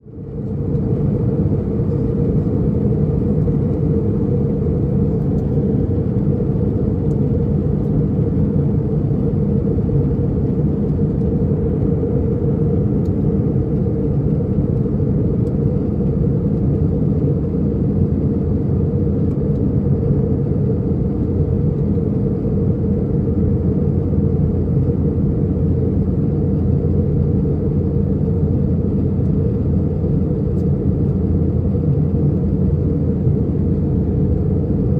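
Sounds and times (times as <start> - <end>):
airplane cabin rumble: 0.0 - 34.9.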